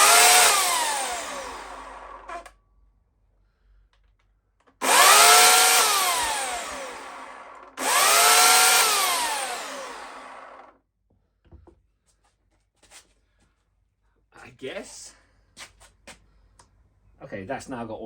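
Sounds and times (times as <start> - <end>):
electric chainsaw whining: 0.0 - 2.5, 4.8 - 10.7.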